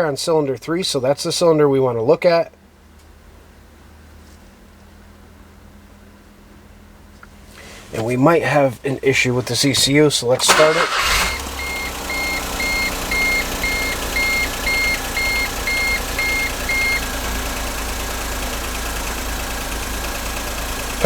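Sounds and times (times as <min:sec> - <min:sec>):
car engine idling with misfire: 0:07.3 - 0:21.0
high electronic beep: 0:11.2 - 0:17.0.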